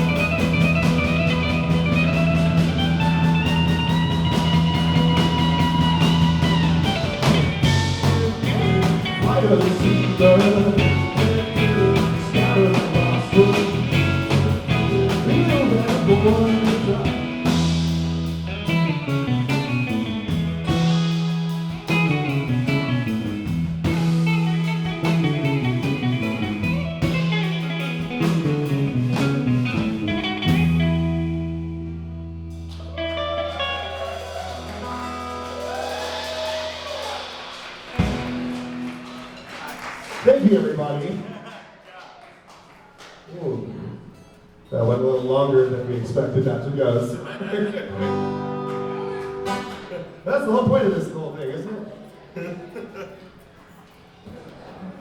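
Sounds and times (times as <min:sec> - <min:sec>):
electric guitar licks: 0:00.0 - 0:39.5, 0:47.9 - 0:50.3
blues-rock band playing: 0:00.0 - 0:40.0, 0:47.9 - 0:50.2.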